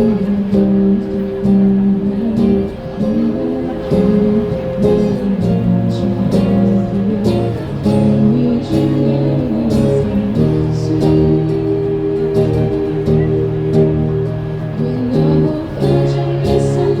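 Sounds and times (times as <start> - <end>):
bass line: 0.0 - 17.0
strummed guitar: 0.0 - 17.0.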